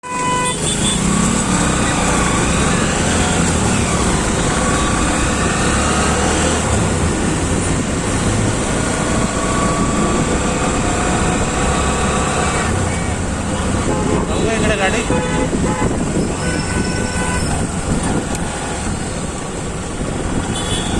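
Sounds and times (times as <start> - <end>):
road noise: 0.0 - 20.9.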